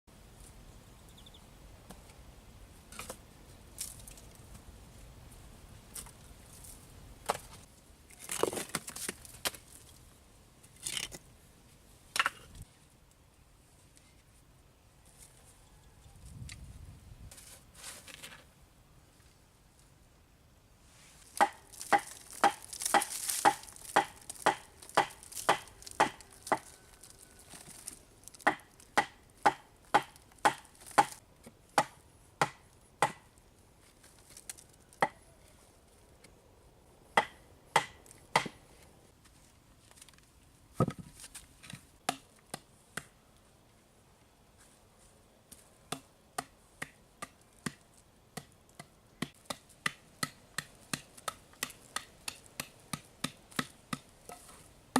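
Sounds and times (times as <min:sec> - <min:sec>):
blade chopping wood: 0:21.4 - 0:26.7, 0:37.2 - 0:38.6.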